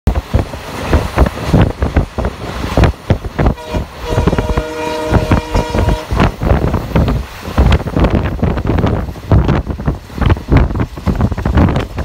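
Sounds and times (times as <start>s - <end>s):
train horn chord: 3.5s - 6.3s.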